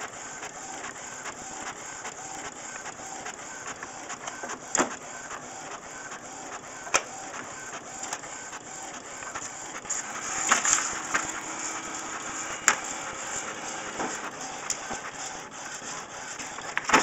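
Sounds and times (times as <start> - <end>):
printer whirring: 0.0 - 17.0
paper rustling: 9.2 - 17.0.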